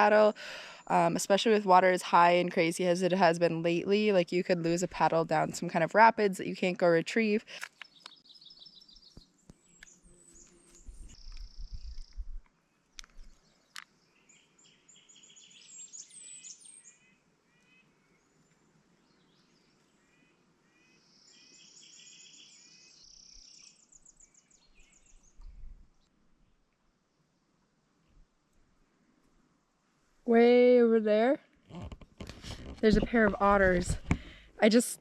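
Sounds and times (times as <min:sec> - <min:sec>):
songbirds trilling and chirping: 0:07.7 - 0:26.1.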